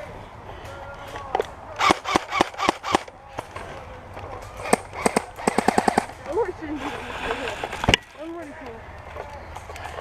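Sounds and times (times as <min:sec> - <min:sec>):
airsoft guns firing: 0:01.8 - 0:03.1, 0:04.5 - 0:06.2.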